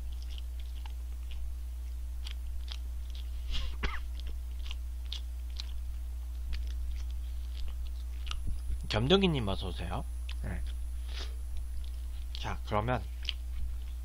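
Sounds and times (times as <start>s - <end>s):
chewing and crunching: 0.0s - 9.6s, 10.2s - 14.0s.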